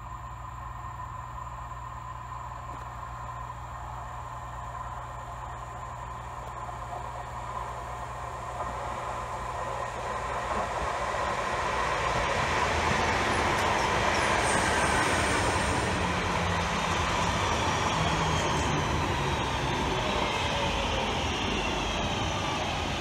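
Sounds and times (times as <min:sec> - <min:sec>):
train wheels on rails: 0:06.8 - 0:23.0.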